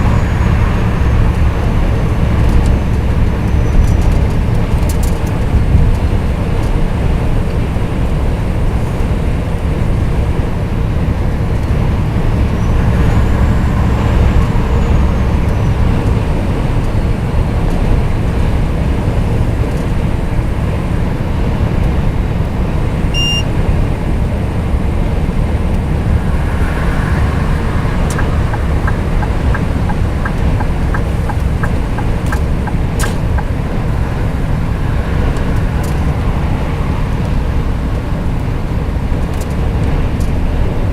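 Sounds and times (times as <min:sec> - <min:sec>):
truck engine and road rumble: 0:00.0 - 0:40.9
short electronic beep: 0:23.1 - 0:23.5
regular ticks: 0:28.1 - 0:33.6.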